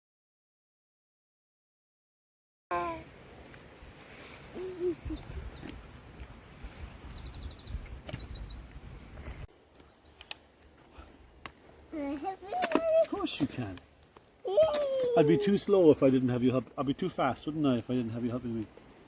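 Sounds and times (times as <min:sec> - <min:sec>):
songbirds singing: 0:02.7 - 0:10.9
wind rumbling on microphone: 0:03.1 - 0:09.5.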